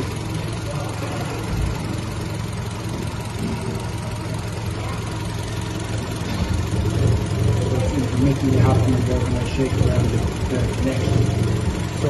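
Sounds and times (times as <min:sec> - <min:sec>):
car engine idling with misfire: 0:00.0 - 0:12.0.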